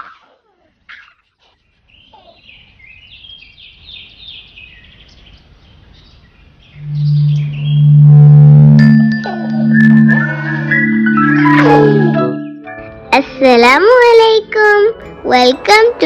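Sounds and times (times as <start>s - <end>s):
birds chirping: 0.0s - 13.1s
music with loud low tone: 6.8s - 13.0s.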